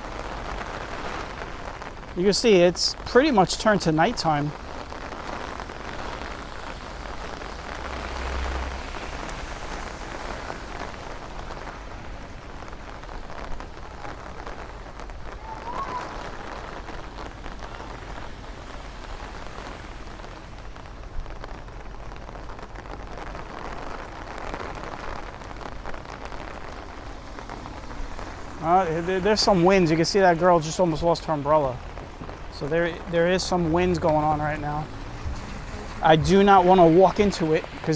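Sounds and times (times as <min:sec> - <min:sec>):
rain pattering on umbrella: 0:00.0 - 0:37.9
low rumble: 0:06.8 - 0:10.7, 0:31.8 - 0:37.9.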